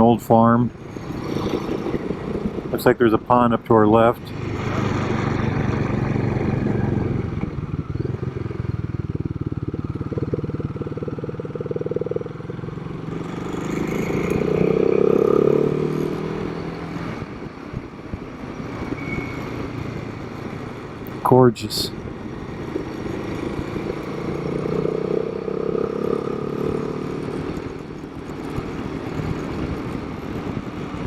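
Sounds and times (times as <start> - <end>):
motorcycle engine beating: 4.9 - 14.9.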